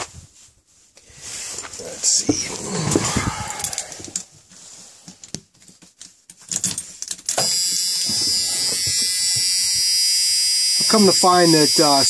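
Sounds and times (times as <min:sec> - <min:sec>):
steady electric buzz: 0:07.4 - 0:12.0.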